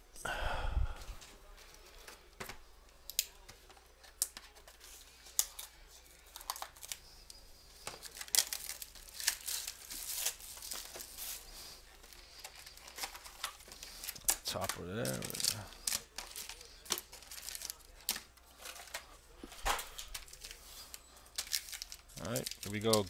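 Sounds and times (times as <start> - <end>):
plastic wrapping crinkling and tearing: 3.0 - 23.0.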